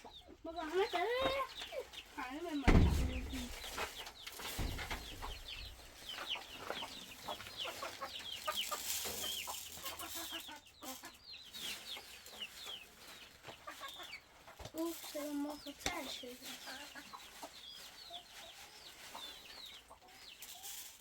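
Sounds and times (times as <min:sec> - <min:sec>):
chickens clucking: 0:00.0 - 0:21.0
low thump: 0:02.7 - 0:03.7, 0:04.6 - 0:05.8.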